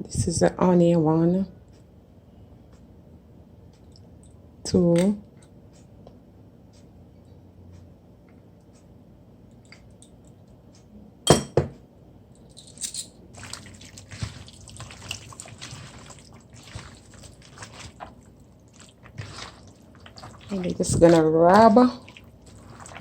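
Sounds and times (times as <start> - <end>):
wet squelching of raw chicken: 13.3 - 23.0.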